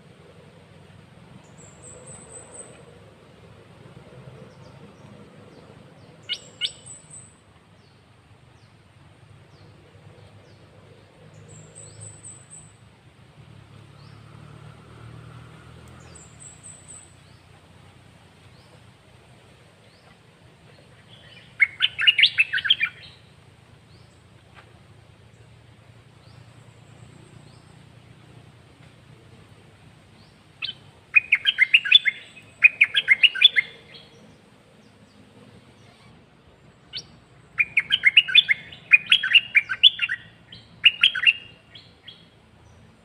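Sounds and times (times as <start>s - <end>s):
bird chirping and singing: 6.0s - 7.3s, 20.7s - 23.2s, 30.2s - 35.2s, 36.9s - 42.2s.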